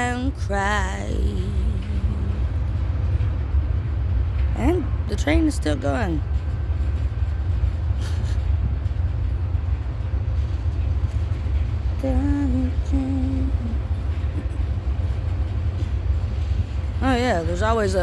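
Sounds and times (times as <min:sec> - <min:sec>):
woman humming: 0:00.0 - 0:02.5, 0:12.0 - 0:13.8
freight train rumbling past: 0:00.0 - 0:18.0.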